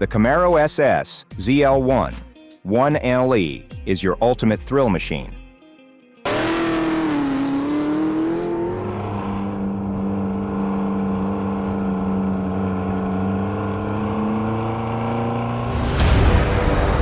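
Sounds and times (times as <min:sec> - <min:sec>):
car engine running: 0:06.3 - 0:17.0.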